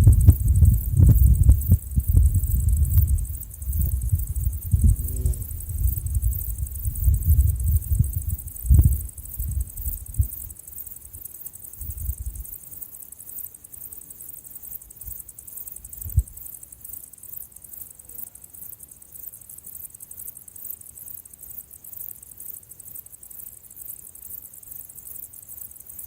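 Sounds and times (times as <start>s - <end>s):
soft low thumps: 0.0s - 10.5s, 16.1s - 16.4s
insects chirring: 0.0s - 26.0s.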